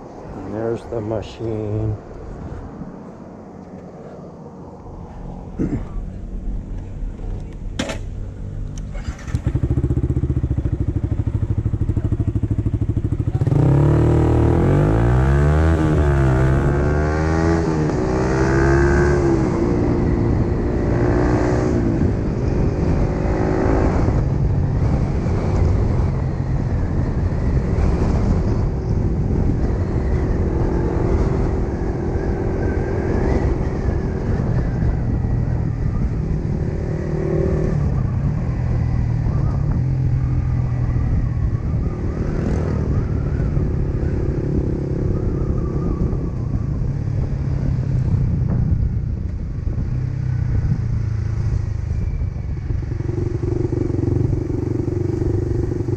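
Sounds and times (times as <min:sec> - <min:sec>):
motorcycle engine revving: 0:07.9 - 0:55.9.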